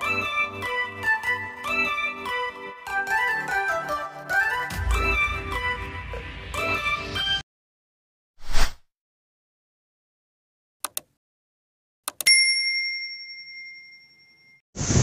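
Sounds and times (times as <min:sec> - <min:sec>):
swish: 0:08.4 - 0:08.8
bright bell-like ding: 0:12.3 - 0:14.6.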